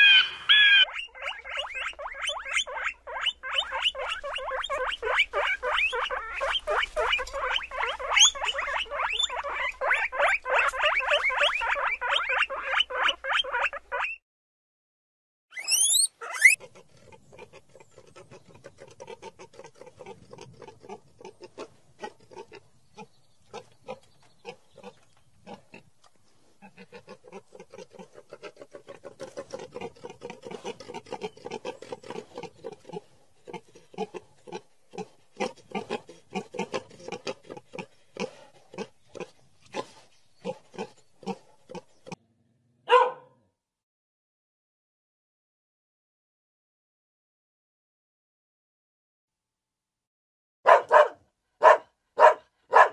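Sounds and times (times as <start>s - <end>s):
boar call: 0.0s - 6.4s, 15.6s - 16.8s
wild boars grunting: 26.6s - 42.5s.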